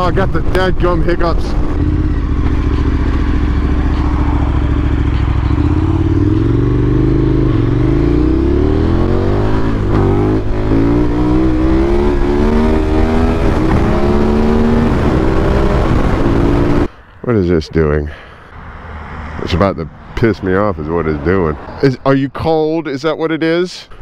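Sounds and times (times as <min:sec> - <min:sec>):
motorcycle engine accelerating: 0:00.0 - 0:16.9
wind rumble: 0:00.0 - 0:16.9.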